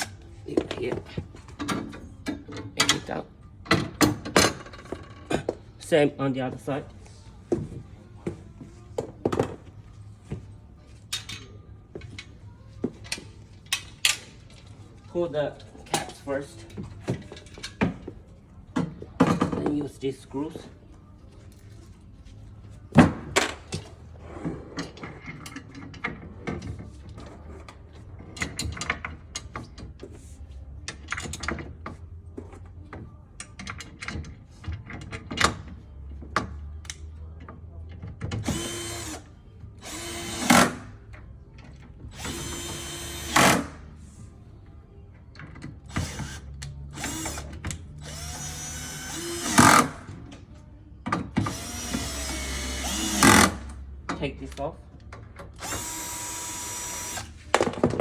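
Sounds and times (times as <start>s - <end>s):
cordless drill driving screws: 38.4s - 39.2s, 39.8s - 40.8s, 42.2s - 43.7s, 47.0s - 47.4s, 48.0s - 50.0s, 51.5s - 53.6s, 55.6s - 57.3s.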